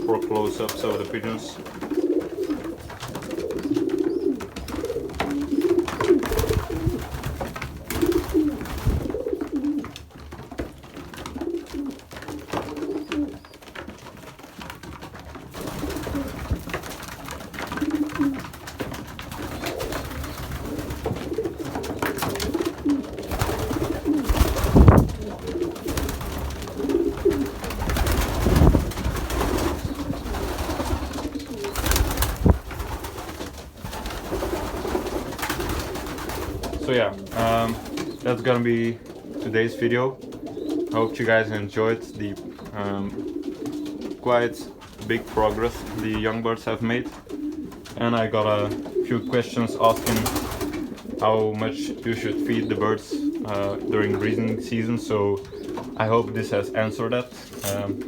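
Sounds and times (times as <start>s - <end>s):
pigeons cooing: 0.0s - 58.0s
knocks and rustles: 0.3s - 39.4s, 57.3s - 58.0s.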